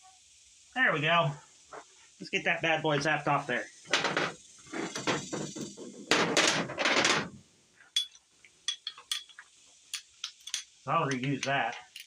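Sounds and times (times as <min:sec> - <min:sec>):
impact wrench rattling: 0:03.9 - 0:07.4
metallic clinks of parts: 0:07.9 - 0:12.0.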